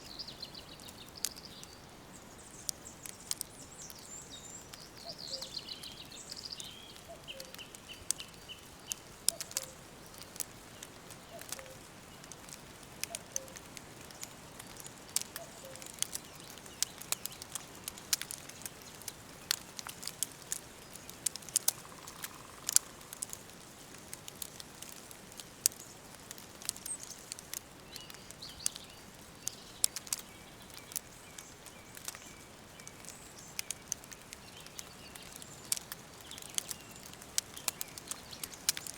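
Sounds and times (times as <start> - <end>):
birdsong: 0.0 - 23.3, 24.4 - 38.9
wood fire crackling: 0.0 - 38.9
falling whistled bird calls: 3.7 - 9.8.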